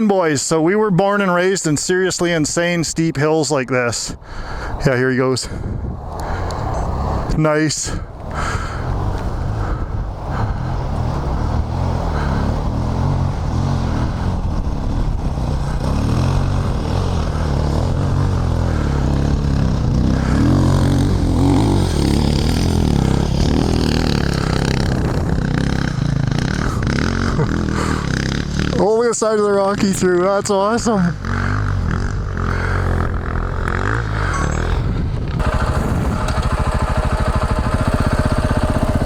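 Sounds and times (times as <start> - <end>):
motorcycle engine revving: 8.3 - 29.9, 30.5 - 39.0.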